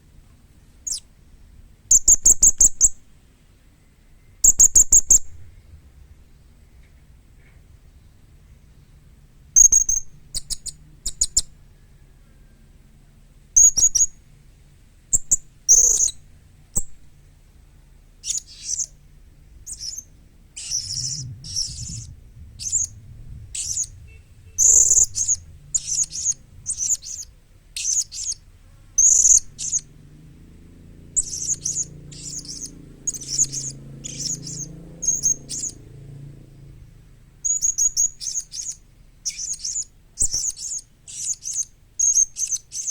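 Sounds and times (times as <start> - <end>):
parrot high chirps: 18.2 - 19.0, 19.6 - 23.0, 23.6 - 28.4, 29.0 - 29.9, 31.2 - 35.8, 37.4 - 42.9.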